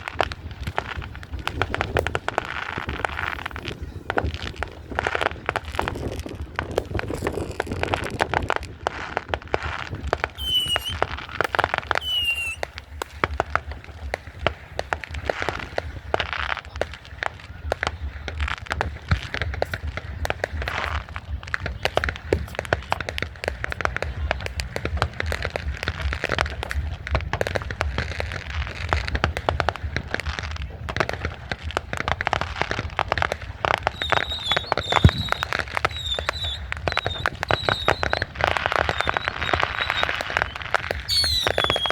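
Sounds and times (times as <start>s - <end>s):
fireworks popping and crackling: 0.0s - 41.9s
firework whistles: 10.2s - 13.0s, 33.7s - 41.9s
crowd voices: 10.4s - 12.9s, 32.8s - 41.9s.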